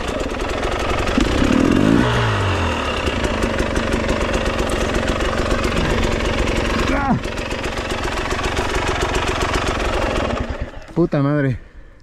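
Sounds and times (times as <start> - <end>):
dirt bike engine revving: 0.0 - 10.9.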